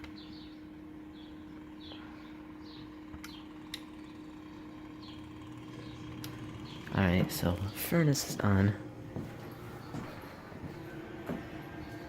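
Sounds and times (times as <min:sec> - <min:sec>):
furnace blower humming: 0:00.0 - 0:12.0
steady low hum: 0:00.0 - 0:12.0
sharp clicks: 0:03.1 - 0:03.9.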